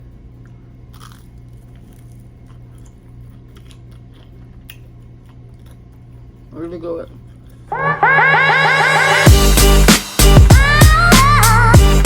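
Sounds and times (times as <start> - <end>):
person chewing crispy chicken: 0.1 - 6.5
low hum: 7.7 - 9.6.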